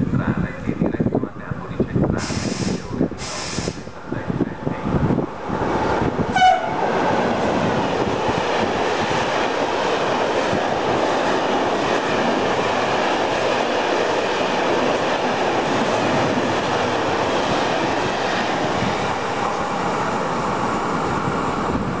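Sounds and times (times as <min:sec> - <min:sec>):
train wheels rolling on rails: 0:02.0 - 0:22.0
train horn toot: 0:06.3 - 0:06.9.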